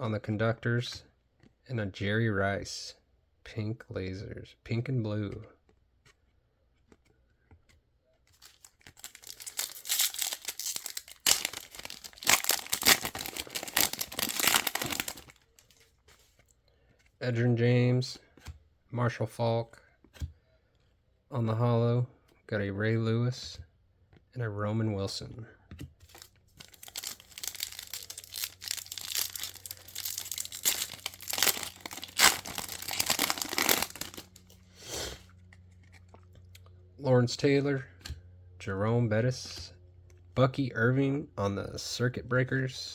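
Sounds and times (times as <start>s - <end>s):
plastic wrapper tearing and crinkling: 8.3s - 15.9s, 26.0s - 34.6s.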